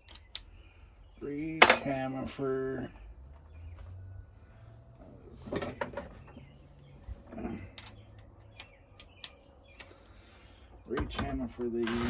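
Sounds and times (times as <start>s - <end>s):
tools and parts clinking: 0.0s - 0.5s, 1.4s - 2.4s, 5.0s - 10.2s.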